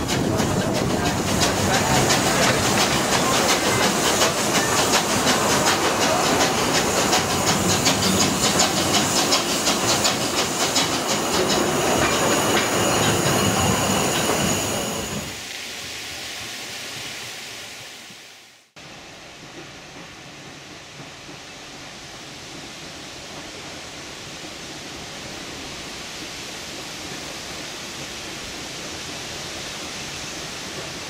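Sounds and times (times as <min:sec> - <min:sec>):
steady high squeal: 0:00.0 - 0:15.4
train wheels clicking on rail: 0:00.0 - 0:15.4, 0:19.0 - 0:31.0
hiss: 0:00.0 - 0:31.0.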